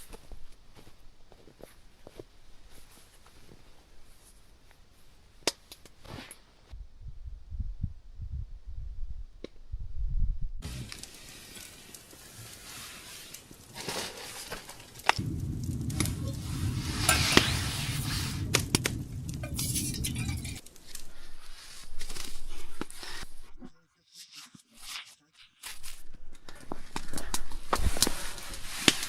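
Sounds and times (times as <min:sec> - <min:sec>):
low rumble: 0:15.2 - 0:20.6.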